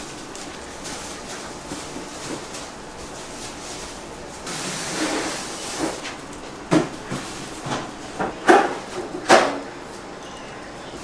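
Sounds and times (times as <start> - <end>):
hiss: 4.4 - 6.0
kitchen knocks: 6.7 - 9.6.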